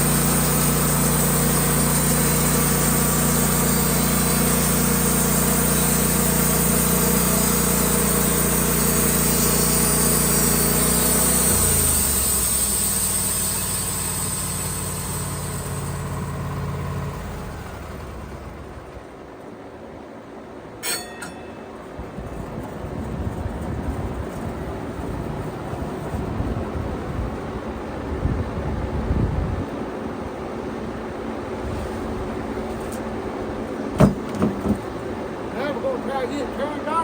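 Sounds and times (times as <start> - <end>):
sawmill engine running: 0.0 - 19.8, 32.1 - 37.0.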